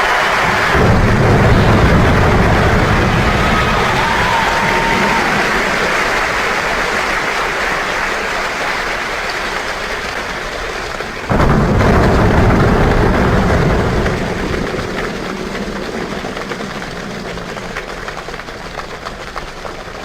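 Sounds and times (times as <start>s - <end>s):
rain-like hiss and patter: 0.0s - 20.0s
deep rumble: 0.1s - 7.4s, 11.3s - 19.6s.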